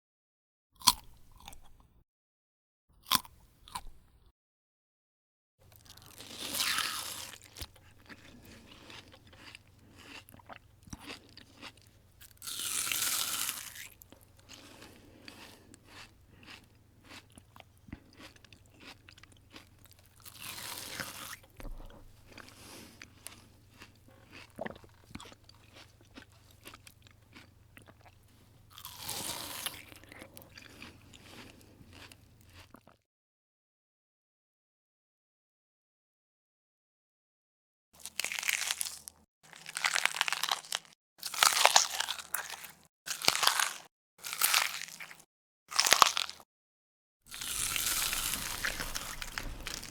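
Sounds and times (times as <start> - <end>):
loud crunches of food: 0.8 - 1.7, 5.7 - 32.9, 38.0 - 46.4, 47.3 - 49.9
chewing with small crackles: 5.7 - 33.0, 47.3 - 49.9.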